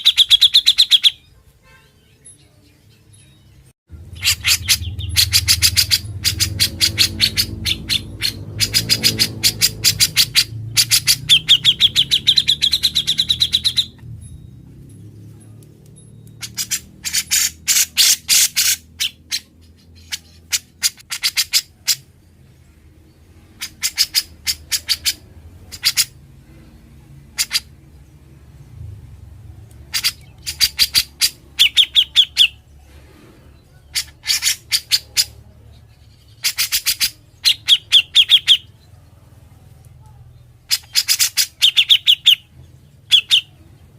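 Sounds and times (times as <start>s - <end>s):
bird trill: 0.0s - 28.1s, 29.8s - 32.8s, 33.6s - 39.2s, 40.0s - 43.9s
bulbul singing rattling notes: 3.0s - 19.5s.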